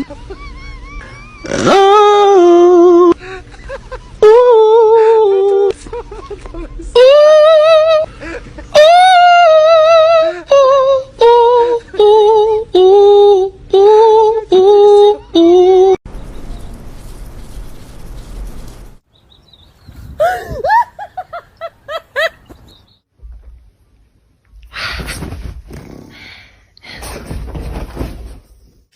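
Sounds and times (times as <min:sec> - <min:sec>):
person singing long wavering notes: 0:01.4 - 0:03.2, 0:04.2 - 0:05.7, 0:06.9 - 0:08.1, 0:08.8 - 0:16.0.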